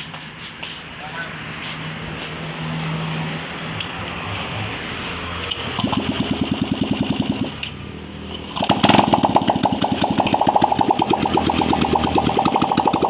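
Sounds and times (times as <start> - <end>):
scooter engine revving: 3.8 - 13.0.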